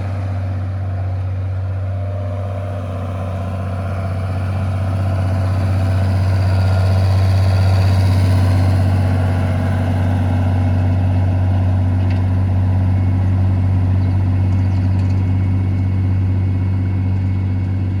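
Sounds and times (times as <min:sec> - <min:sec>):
tractor diesel engine under load: 0:00.0 - 0:18.0.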